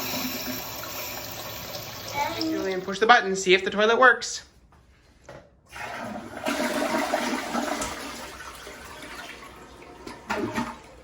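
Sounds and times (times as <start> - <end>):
toilet flushing: 0.0 - 3.0, 5.7 - 11.0.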